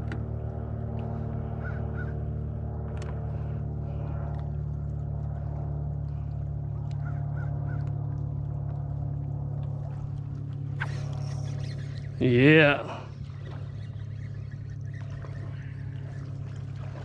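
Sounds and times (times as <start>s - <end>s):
boat motor humming: 0.0s - 17.0s
faint bird calls: 1.5s - 2.3s, 10.7s - 17.0s.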